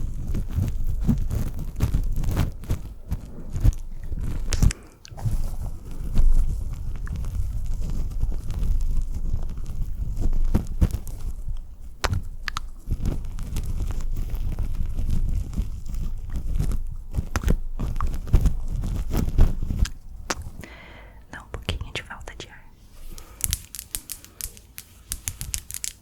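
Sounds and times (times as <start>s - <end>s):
wet mouth sounds: 19.8s - 20.7s.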